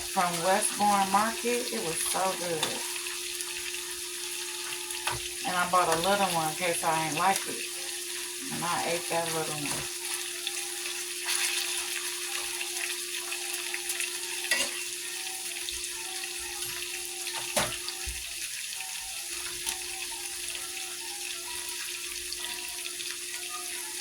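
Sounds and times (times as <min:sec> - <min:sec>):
steak sizzling in a hot pan: 0:00.0 - 0:24.0.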